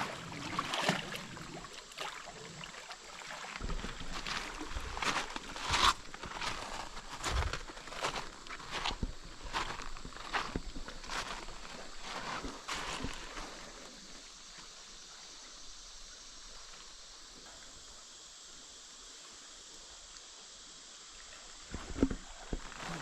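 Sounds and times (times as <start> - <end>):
water splashing: 0.0 - 9.7
creek water running: 0.0 - 23.0.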